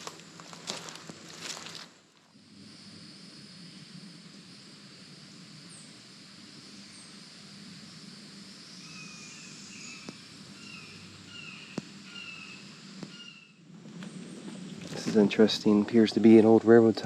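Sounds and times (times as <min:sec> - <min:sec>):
twigs snapping: 0:00.0 - 0:01.9
insect hum: 0:00.0 - 0:17.0
bird call notes: 0:08.8 - 0:13.6.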